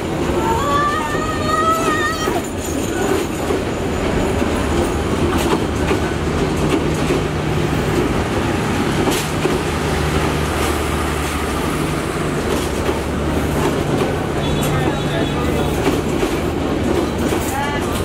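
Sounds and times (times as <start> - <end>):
train wheels rumbling on rails: 0.0 - 18.0
clacks at rail joints: 1.6 - 18.0.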